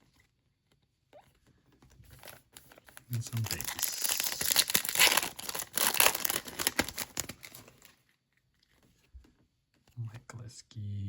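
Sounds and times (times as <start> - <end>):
wrapper crinkling and tearing: 2.1 - 8.0.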